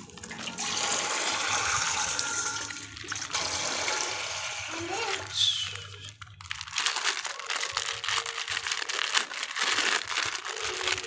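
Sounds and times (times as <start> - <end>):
plastic packaging crinkling: 0.0 - 0.6, 2.7 - 3.6, 4.7 - 11.0.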